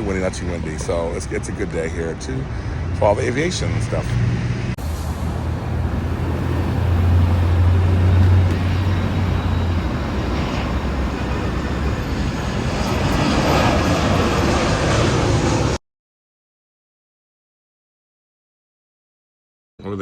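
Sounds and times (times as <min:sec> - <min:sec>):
jet aircraft noise: 0:00.0 - 0:15.8
road traffic rumble: 0:00.0 - 0:15.8.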